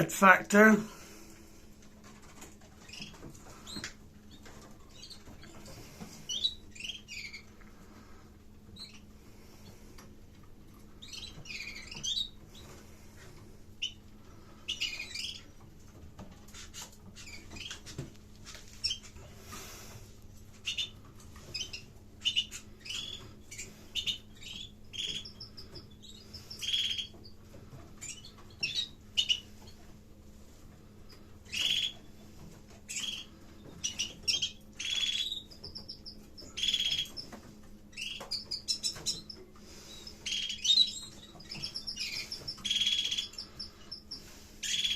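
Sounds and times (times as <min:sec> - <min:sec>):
canaries chirping: 0:02.1 - 0:18.1, 0:18.8 - 0:30.0, 0:30.6 - 0:44.9.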